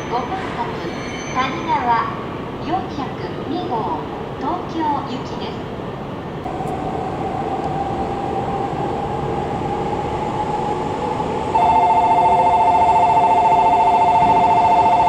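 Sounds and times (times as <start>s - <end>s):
electric whine of train motors: 6.5s - 15.0s.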